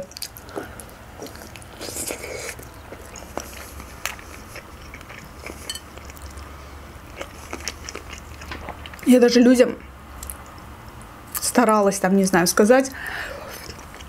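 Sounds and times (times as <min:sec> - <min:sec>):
biting and chewing chicken: 0:00.0 - 0:09.1.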